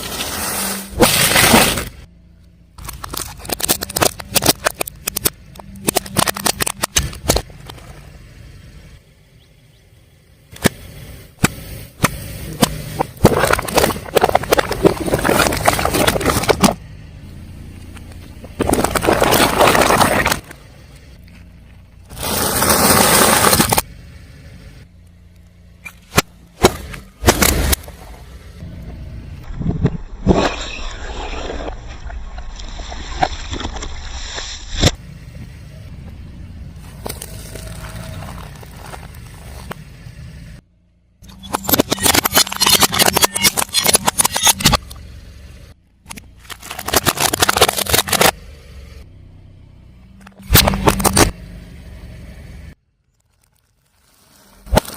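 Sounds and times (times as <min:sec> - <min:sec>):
car tyre crushing crunchy objects: 0:00.0 - 0:09.8, 0:10.4 - 0:40.6, 0:41.2 - 0:54.9
low car rumble: 0:00.0 - 0:53.7
sharp cracks: 0:46.0 - 0:48.4.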